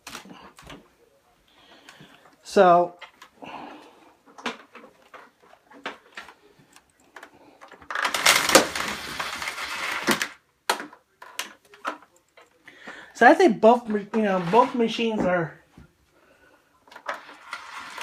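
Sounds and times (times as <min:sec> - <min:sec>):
rustling scraping noise: 0:08.0 - 0:10.4, 0:13.6 - 0:15.5, 0:17.0 - 0:18.0.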